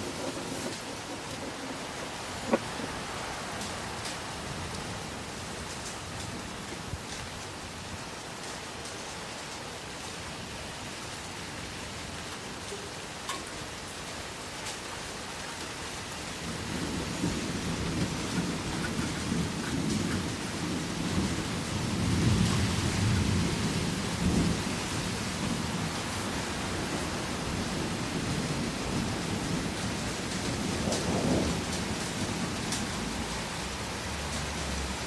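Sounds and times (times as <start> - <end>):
steady rain: 0.0 - 35.0
rolling thunder: 27.6 - 33.2.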